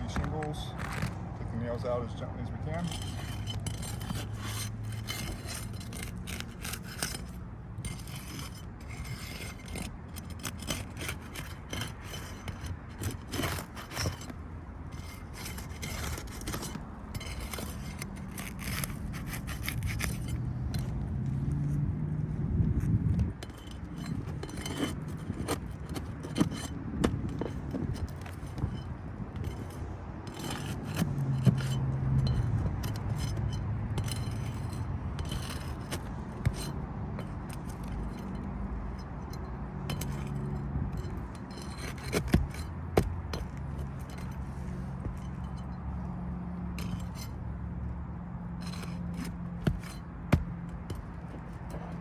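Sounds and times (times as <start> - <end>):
metal bar scraping shingles: 2.6 - 21.6, 23.0 - 46.0, 46.7 - 47.5, 48.4 - 52.0.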